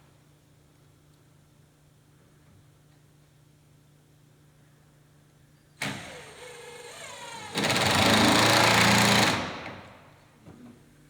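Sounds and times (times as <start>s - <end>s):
electric drill on wood: 5.8s - 9.7s.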